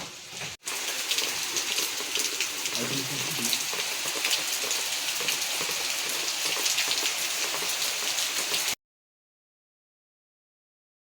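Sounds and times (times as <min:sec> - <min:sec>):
heavy rain falling: 0:00.2 - 0:08.8.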